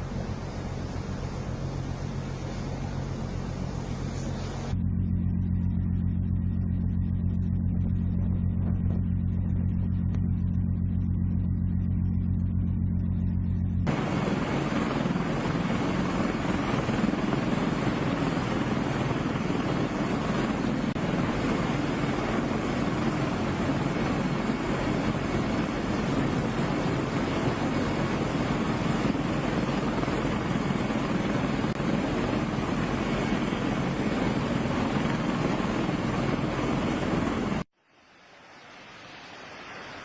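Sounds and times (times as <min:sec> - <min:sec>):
low engine drone: 0:00.0 - 0:37.7
rush of wind: 0:13.8 - 0:40.0.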